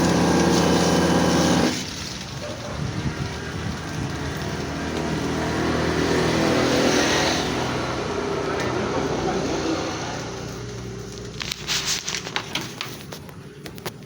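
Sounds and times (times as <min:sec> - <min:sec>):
motor humming: 0:00.0 - 0:01.9.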